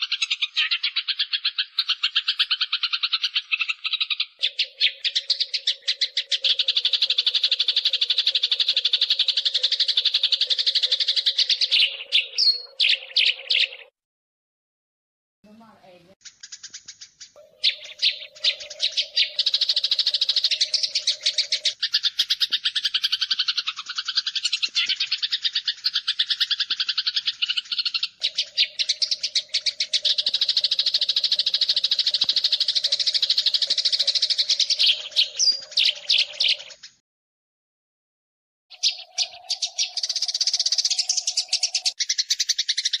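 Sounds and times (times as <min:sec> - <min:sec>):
sparrows chirping rapidly: 0:00.0 - 0:13.9, 0:15.5 - 0:37.0, 0:38.7 - 0:43.0.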